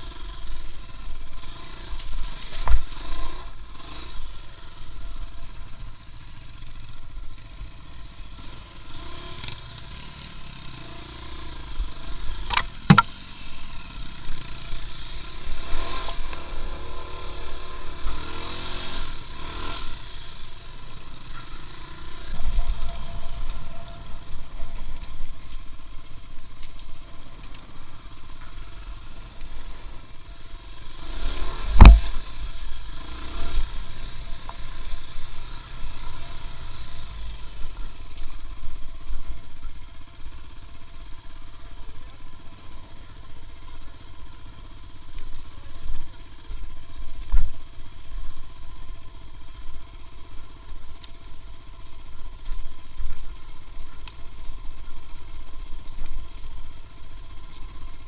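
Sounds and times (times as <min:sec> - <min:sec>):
engine running with low rumble: 0:00.0 - 0:58.0
sharp knock: 0:12.5 - 0:13.1, 0:31.8 - 0:32.2.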